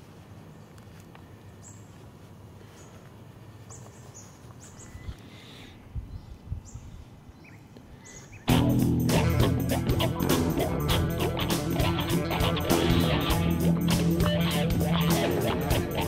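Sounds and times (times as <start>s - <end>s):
low outdoor hiss: 0.0s - 16.0s
birds chirping: 0.4s - 16.0s
dull low thumps: 8.5s - 16.0s.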